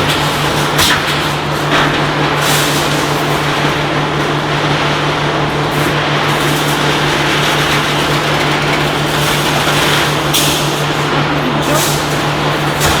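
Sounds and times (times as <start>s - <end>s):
welding machine noise: 0.0s - 13.0s.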